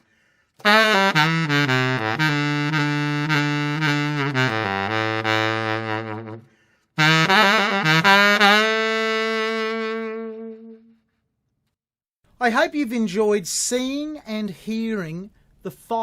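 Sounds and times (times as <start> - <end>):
baritone saxophone melody: 0.6 - 11.2.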